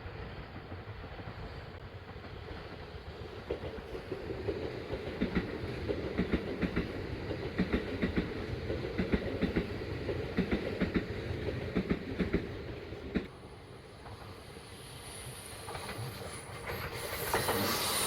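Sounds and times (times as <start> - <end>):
train rumble: 0.0 - 18.0
train wheels clattering over rail joints: 1.1 - 13.3.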